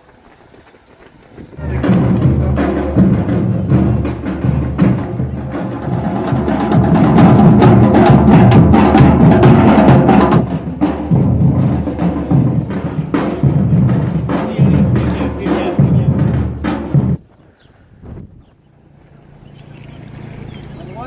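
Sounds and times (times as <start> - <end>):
drum and percussion music: 1.6 - 17.2.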